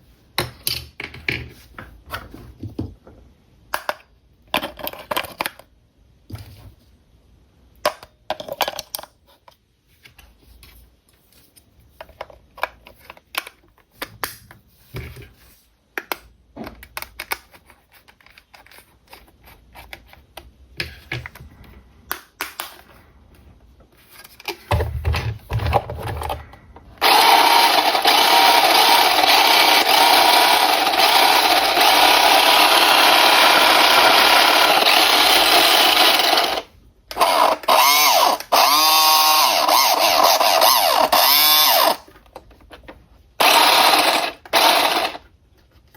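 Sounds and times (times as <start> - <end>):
toy car electric motor whirring: 27.0 - 42.1, 43.4 - 45.2.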